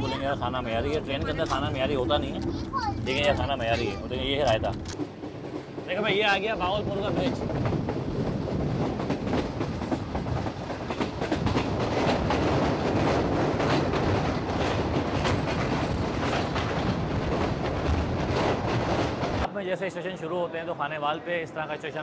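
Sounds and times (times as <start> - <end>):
wheels clicking over rail joints: 0.0 - 6.4, 7.0 - 19.5
train rumbling at speed: 0.0 - 19.5.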